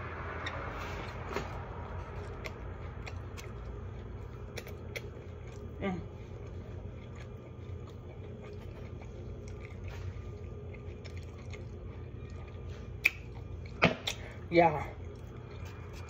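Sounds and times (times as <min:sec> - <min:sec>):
faint mouth chewing: 0:00.3 - 0:14.4, 0:15.0 - 0:16.0.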